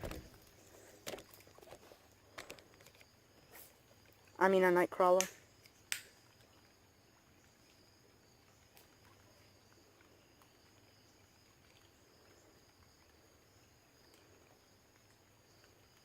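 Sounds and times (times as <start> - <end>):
high-pitched insect trill: 0.1 - 16.0
small click: 5.2 - 6.1.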